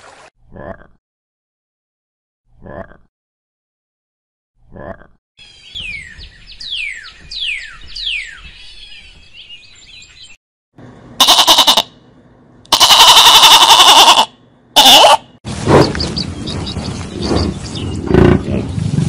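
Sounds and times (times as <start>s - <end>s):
sheep bleating: 11.2s - 11.9s, 12.7s - 15.2s.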